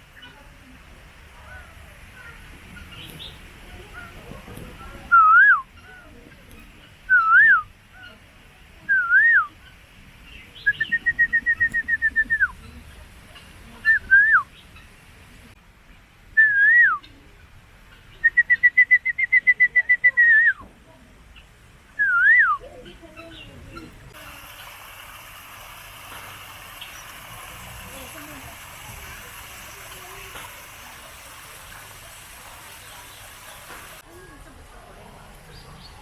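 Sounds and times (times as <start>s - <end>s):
swooping whistles: 5.1s - 5.7s, 7.1s - 7.7s, 8.9s - 9.5s, 10.6s - 12.6s, 13.9s - 14.5s, 16.4s - 17.0s, 18.2s - 20.6s, 22.0s - 22.6s.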